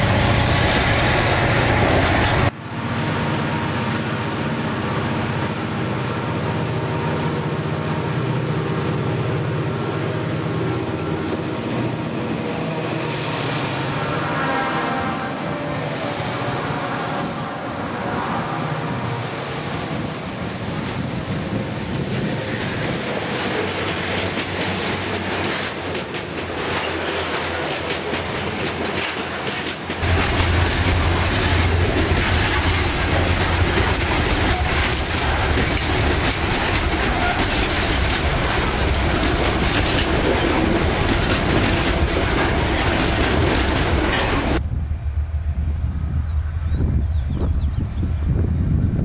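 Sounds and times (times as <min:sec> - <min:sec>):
diesel locomotive rumble: 0:00.0 - 0:49.0
freight wagons rolling on rails: 0:20.0 - 0:44.6.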